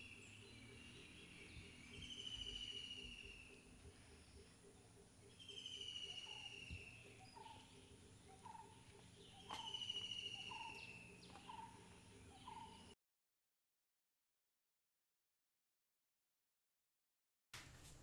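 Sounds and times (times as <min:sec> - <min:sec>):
faint background noise: 0:00.0 - 0:13.0
bird whistling long falling note: 0:01.9 - 0:03.4.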